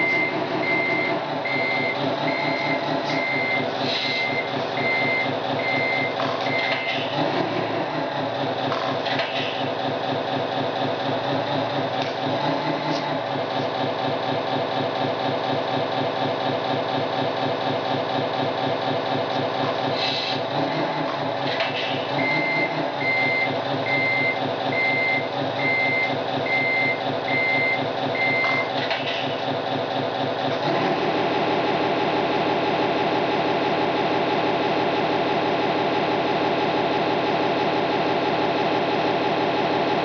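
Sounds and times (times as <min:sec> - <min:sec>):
reversing warning beeps: 0:00.0 - 0:07.1, 0:22.2 - 0:28.8
simulated truck diesel engine: 0:00.0 - 0:40.0.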